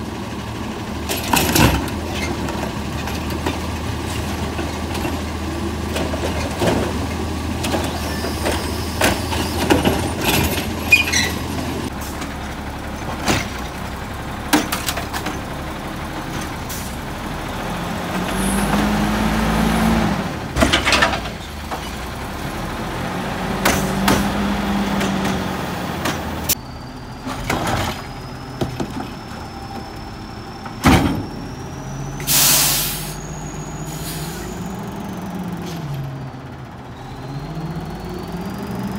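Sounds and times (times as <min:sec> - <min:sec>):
garbage truck engine running: 0:00.0 - 0:38.9
trash carts knocking and banging: 0:01.0 - 0:16.6, 0:20.3 - 0:31.6
air brake hiss: 0:32.2 - 0:34.6.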